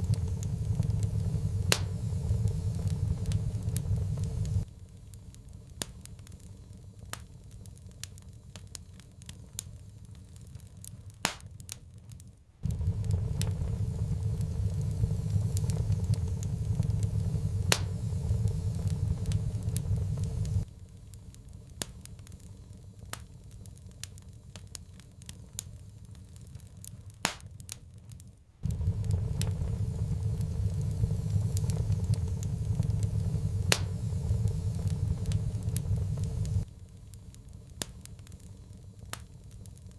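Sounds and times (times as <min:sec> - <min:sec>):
low rumble: 0:00.0 - 0:04.7, 0:12.6 - 0:20.7, 0:28.6 - 0:36.8
wood fire crackling: 0:00.0 - 0:39.9.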